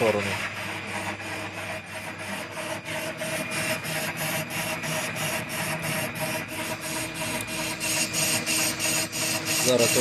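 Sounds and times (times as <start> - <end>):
lathe machine hum: 0.0 - 10.0
lathe tool scraping metal: 0.0 - 10.0.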